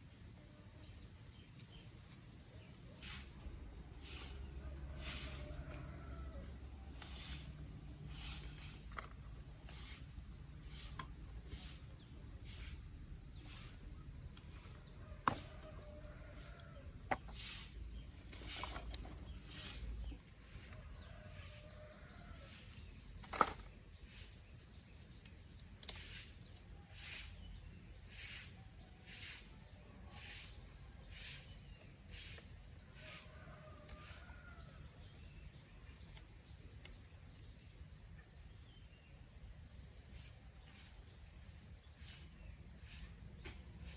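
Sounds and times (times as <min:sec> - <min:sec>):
crickets trilling: 0:00.0 - 0:43.9
short rasping strokes: 0:04.0 - 0:05.9.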